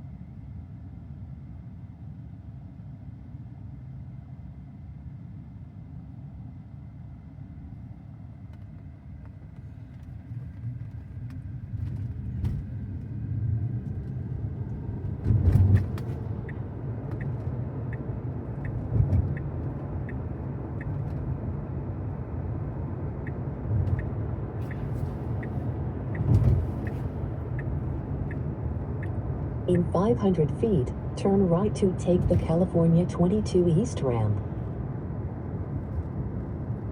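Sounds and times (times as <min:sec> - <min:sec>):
road and tyre noise in car cabin: 0:00.0 - 0:36.9
turn signal ticking: 0:15.6 - 0:21.7, 0:23.1 - 0:33.5
low thumps from road bumps: 0:26.1 - 0:28.4.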